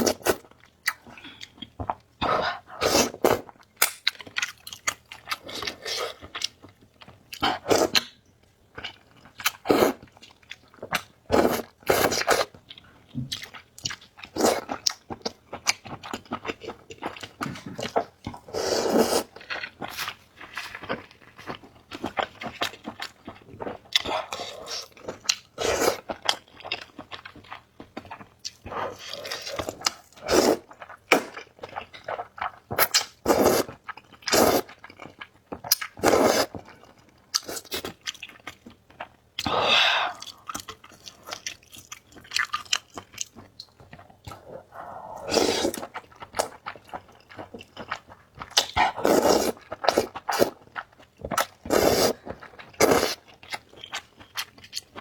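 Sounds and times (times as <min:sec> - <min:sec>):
slurping noodles and soup: 0:02.2 - 0:03.4, 0:09.6 - 0:10.0, 0:11.3 - 0:12.5, 0:17.4 - 0:20.0, 0:25.6 - 0:26.1, 0:28.7 - 0:31.4, 0:32.8 - 0:34.8, 0:36.0 - 0:36.6, 0:44.3 - 0:46.0, 0:48.6 - 0:50.6, 0:51.4 - 0:53.2
chewing and mouth smacks: 0:40.1 - 0:44.6, 0:45.2 - 0:55.0.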